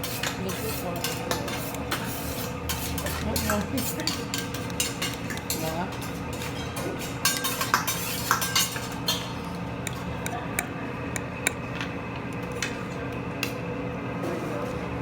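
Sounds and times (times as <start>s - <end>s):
cutlery and dishes clinking: 0.0s - 10.1s.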